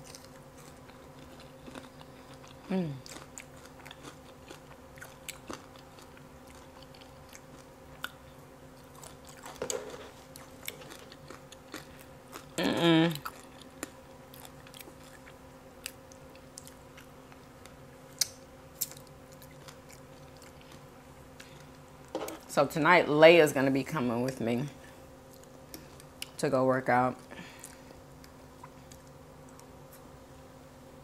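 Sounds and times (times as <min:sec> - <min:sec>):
person chewing food: 0:00.0 - 0:22.5, 0:25.2 - 0:26.4, 0:27.5 - 0:30.1
faint steady hum: 0:00.0 - 0:31.0
person humming mm: 0:02.7 - 0:03.1.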